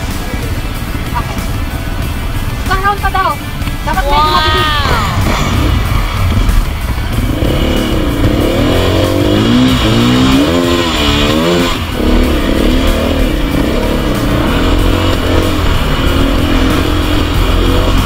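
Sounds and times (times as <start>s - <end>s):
dirt bike engine revving: 4.4s - 18.0s.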